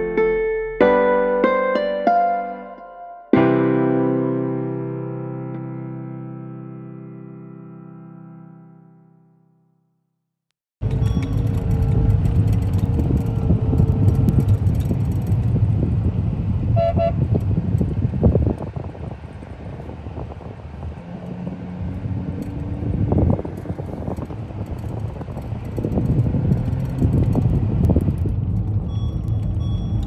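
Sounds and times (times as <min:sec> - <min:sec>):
traffic rumble: 0:10.8 - 0:30.0
car horn toot: 0:16.8 - 0:17.3.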